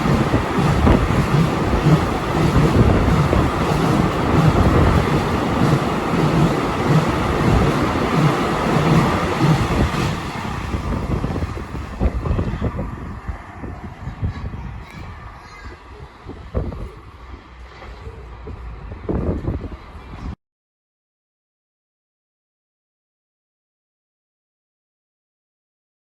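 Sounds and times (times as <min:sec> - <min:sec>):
train wheels clattering on rails: 0:00.0 - 0:12.9
freight train passing: 0:00.0 - 0:20.4.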